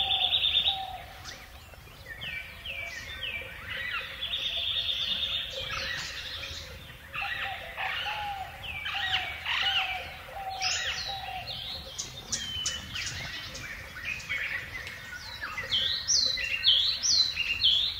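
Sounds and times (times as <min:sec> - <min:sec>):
birds chirping: 0:00.0 - 0:17.9.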